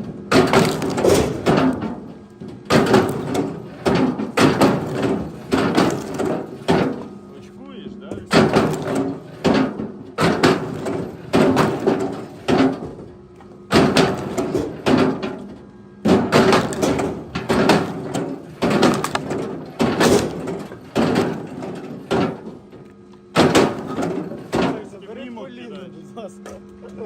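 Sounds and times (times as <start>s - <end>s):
wood knocking on wood: 18.6s - 21.4s.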